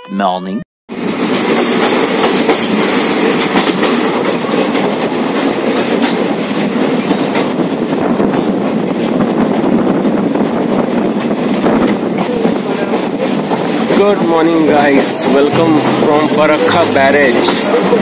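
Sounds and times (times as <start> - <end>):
train rushing rumble: 0.9 - 18.0
wheel clatter over rail joints: 11.4 - 18.0.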